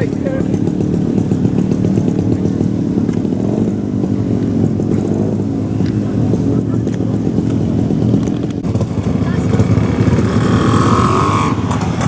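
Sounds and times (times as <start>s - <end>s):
vehicle engine running at low revs: 0.0s - 12.0s.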